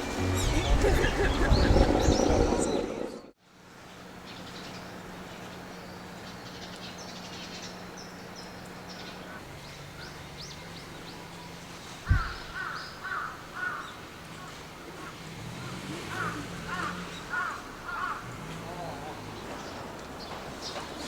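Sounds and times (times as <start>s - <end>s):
small birds chirping: 3.9s - 21.0s
crow cawing: 12.0s - 15.2s, 16.1s - 18.3s.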